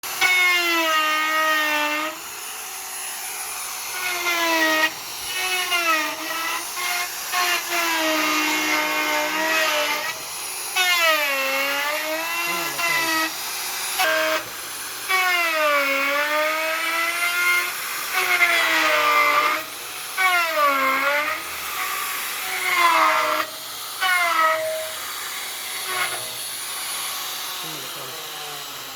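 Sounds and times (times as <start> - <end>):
electric hand planer cutting wood: 0.0 - 28.9.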